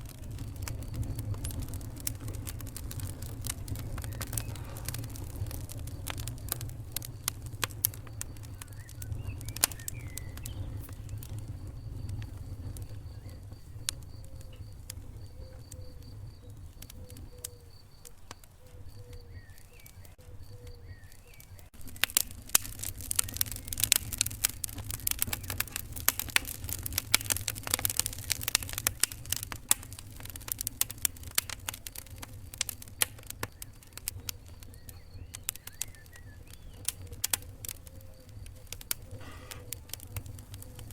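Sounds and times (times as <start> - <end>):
low rumble: 0.0 - 16.6
sharp pops: 0.0 - 40.9
wood fire crackling: 0.0 - 40.9.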